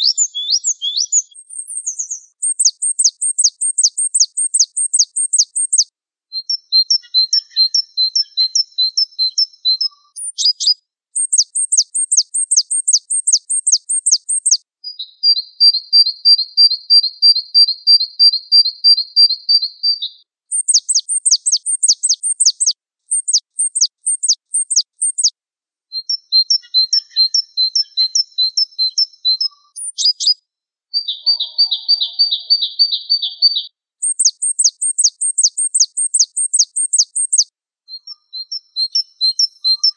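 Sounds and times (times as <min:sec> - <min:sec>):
bird trill: 0:00.0 - 0:25.3, 0:26.0 - 0:39.9
songbird singing sharp notes: 0:00.0 - 0:25.3, 0:25.9 - 0:39.9.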